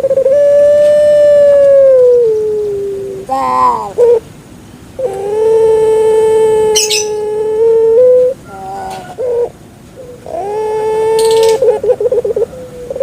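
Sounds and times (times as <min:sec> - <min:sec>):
dove cooing: 0:00.0 - 0:04.3, 0:05.0 - 0:13.0.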